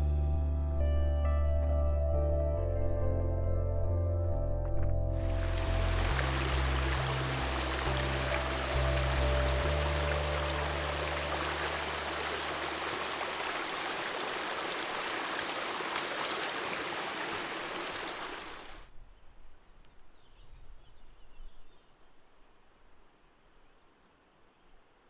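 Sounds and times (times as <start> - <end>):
stream water running: 5.2 - 18.9.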